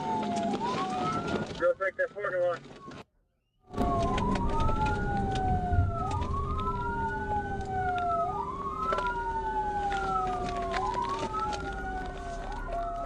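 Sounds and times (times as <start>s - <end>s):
police siren wailing: 0.0s - 1.8s, 3.7s - 13.0s
hum and road noise: 3.7s - 13.0s.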